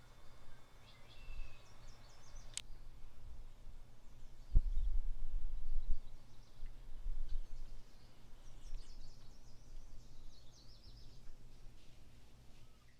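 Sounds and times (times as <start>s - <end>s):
bird chirping: 0.0s - 3.0s, 5.6s - 11.9s.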